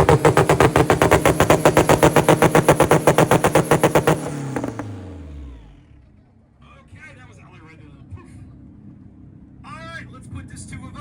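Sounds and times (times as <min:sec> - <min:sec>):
exhaust pops on launch limiter: 0:00.0 - 0:05.8.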